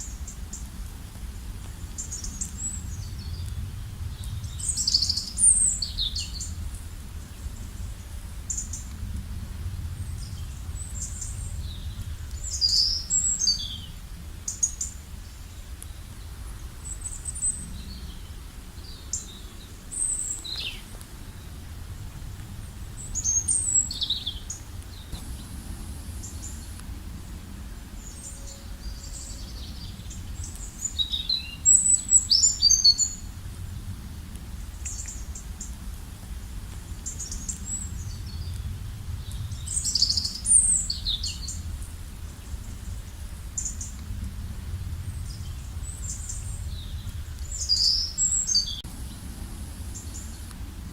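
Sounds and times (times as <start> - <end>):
low rumble: 0.2 - 14.4, 19.6 - 32.3, 33.1 - 50.9
birds chirping and trilling: 23.0 - 33.2, 45.2 - 50.5.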